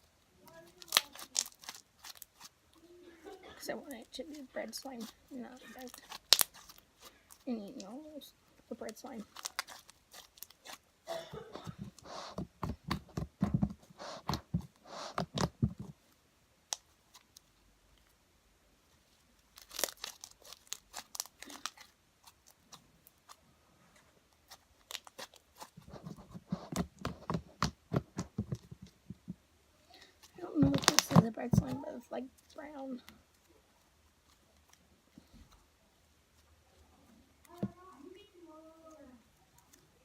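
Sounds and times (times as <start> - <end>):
sticky slime crackling and popping: 0.4 - 2.8, 3.9 - 10.9, 12.4 - 15.9, 19.5 - 23.4, 24.3 - 25.9, 30.1 - 34.8.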